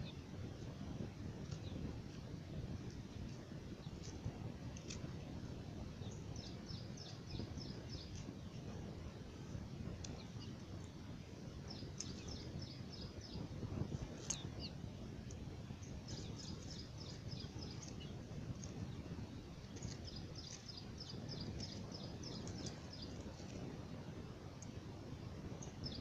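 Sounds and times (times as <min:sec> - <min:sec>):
low outdoor rumble: 0:00.0 - 0:26.0
small bird chirping: 0:14.2 - 0:14.8, 0:15.8 - 0:23.6.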